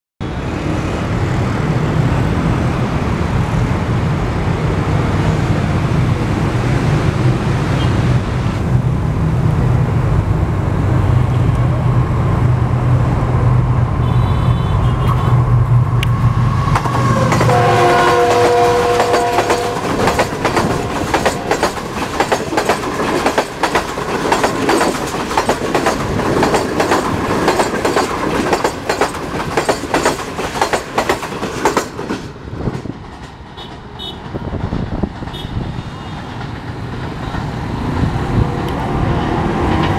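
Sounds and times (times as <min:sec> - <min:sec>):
locomotive engine drone: 0:00.2 - 0:22.3
train horn: 0:14.0 - 0:15.5, 0:16.9 - 0:21.6, 0:35.3 - 0:36.2
train wheels clickety-clack: 0:16.0 - 0:39.9.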